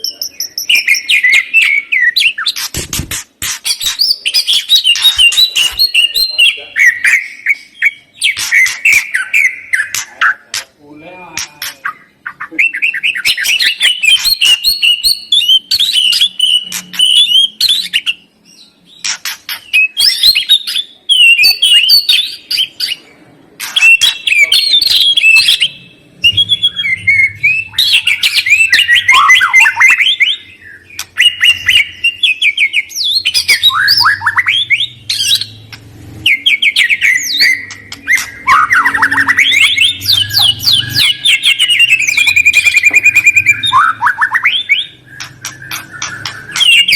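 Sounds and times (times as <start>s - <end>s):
songbird singing: 0.0s - 2.8s, 3.6s - 46.9s.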